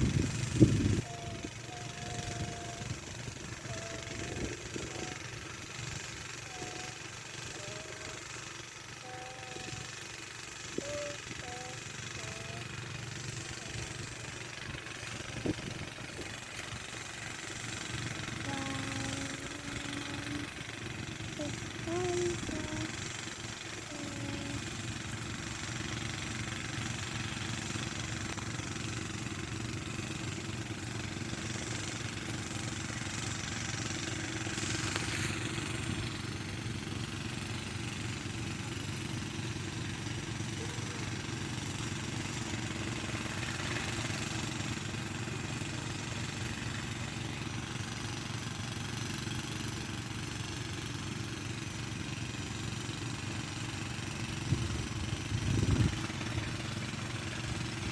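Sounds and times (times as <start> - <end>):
small tiller engine running: 0.0 - 57.9.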